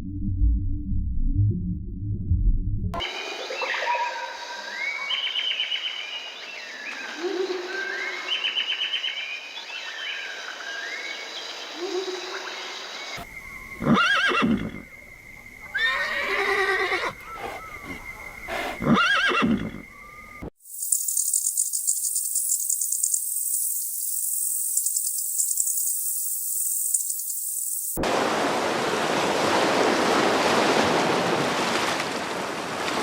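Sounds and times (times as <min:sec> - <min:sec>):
bird singing: 0:03.0 - 0:28.0
large animal calling: 0:15.7 - 0:19.9.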